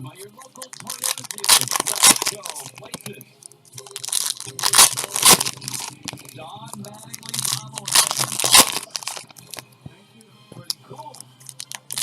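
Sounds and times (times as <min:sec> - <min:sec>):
foil wrappers tearing and crinkling: 0:00.5 - 0:03.0, 0:03.8 - 0:09.6, 0:11.4 - 0:12.0.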